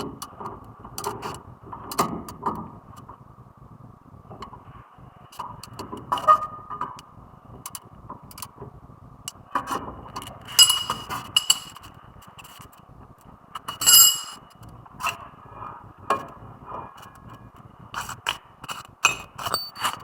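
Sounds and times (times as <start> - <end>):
metal tools clinking and scraping: 10.6 - 11.8, 13.8 - 14.4, 19.5 - 19.9.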